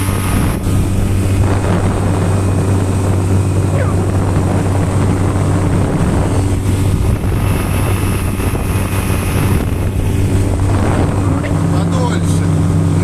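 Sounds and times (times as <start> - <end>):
outboard motor running: 0.0 - 13.0
water rushing: 0.0 - 13.0
wind: 0.0 - 13.0.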